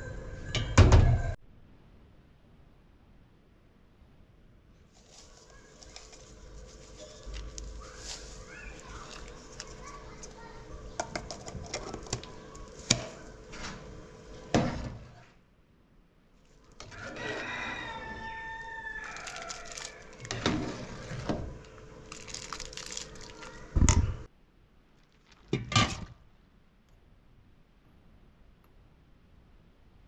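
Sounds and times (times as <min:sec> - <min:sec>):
rooster crowing: 0:16.8 - 0:20.2.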